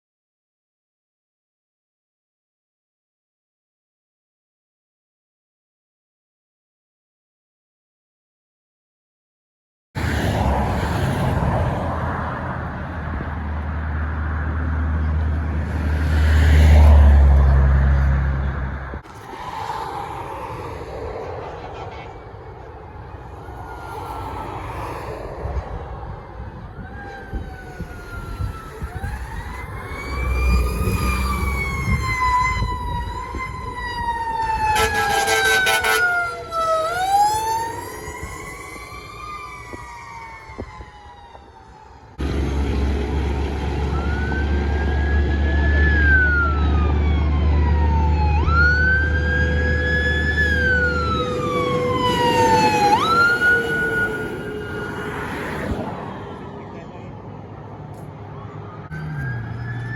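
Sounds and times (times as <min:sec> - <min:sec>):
fire truck sirens wailing: 0:10.0 - 0:59.9
low rumble of passing truck: 0:10.0 - 0:59.9
short horn blast: 0:34.7 - 0:36.3.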